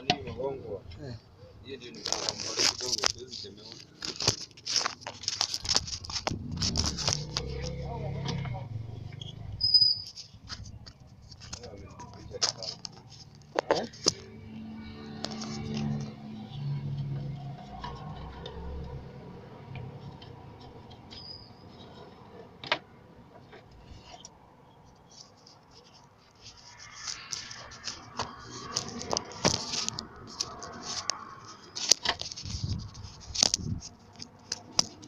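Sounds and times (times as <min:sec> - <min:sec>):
metal parts scraping: 0:02.0 - 0:07.8, 0:25.1 - 0:35.0.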